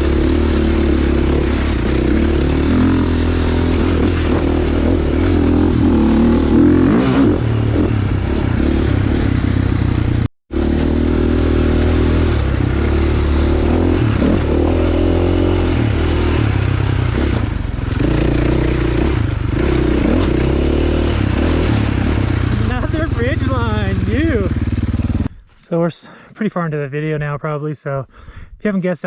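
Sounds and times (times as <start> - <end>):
dirt bike engine revving: 0.0 - 25.3.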